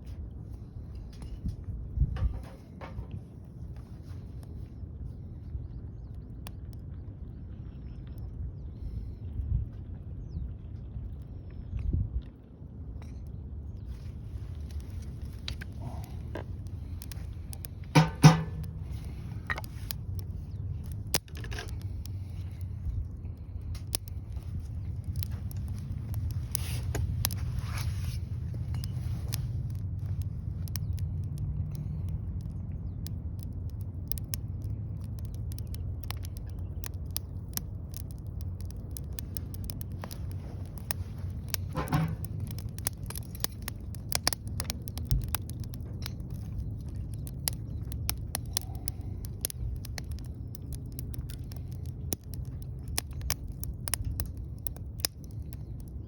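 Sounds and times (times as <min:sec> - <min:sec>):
low fire rumble: 0:00.0 - 0:56.0
wood fire crackling and popping: 0:12.4 - 0:56.0.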